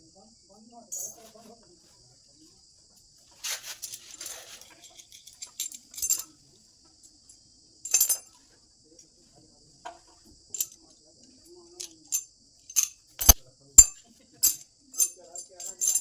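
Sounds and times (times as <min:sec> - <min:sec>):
crickets chirring: 0:00.0 - 0:16.0
metal clinks and clatter: 0:03.4 - 0:06.4, 0:07.9 - 0:08.4, 0:10.6 - 0:10.9, 0:11.8 - 0:16.0.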